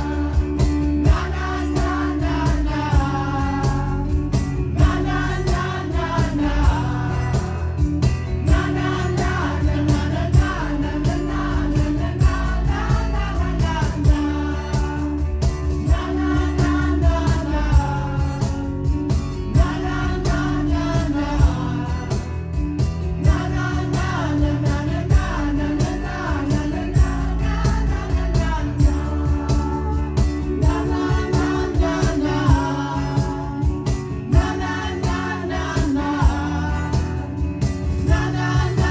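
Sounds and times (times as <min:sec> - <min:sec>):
acoustic guitars strummed: 0:00.0 - 0:38.9.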